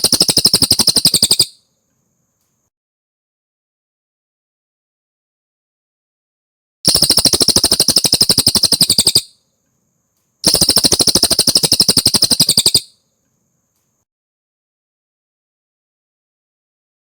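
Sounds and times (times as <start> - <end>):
songbird fast trills: 0.0 - 1.6, 6.9 - 9.4, 10.4 - 13.0.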